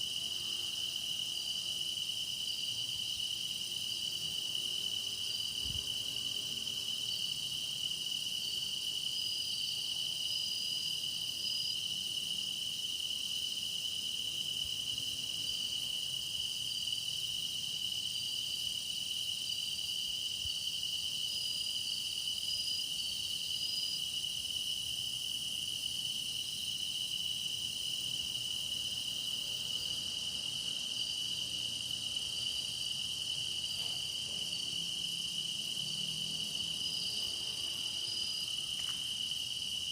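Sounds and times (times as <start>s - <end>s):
grass insects trilling: 20.8s - 39.9s.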